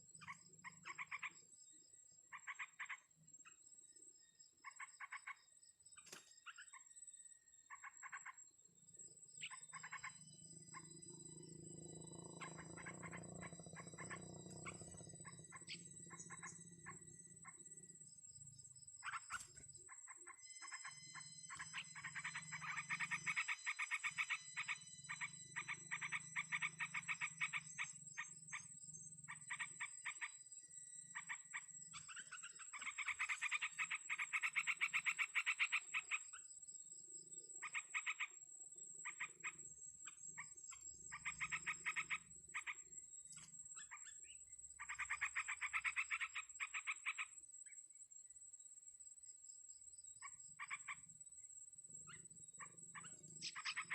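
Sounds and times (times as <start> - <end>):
pulsed animal calls: 9.4 - 30.4, 40.3 - 47.3.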